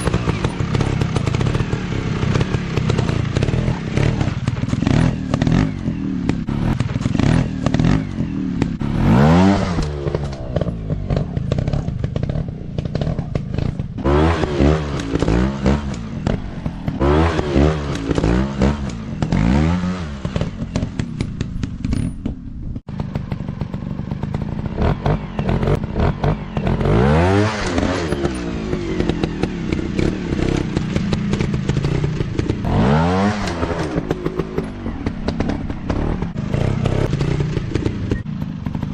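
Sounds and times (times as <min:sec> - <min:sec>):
dirt bike engines revving: 0:00.0 - 0:22.1, 0:22.9 - 0:38.9
knocks and clatter: 0:00.0 - 0:38.9.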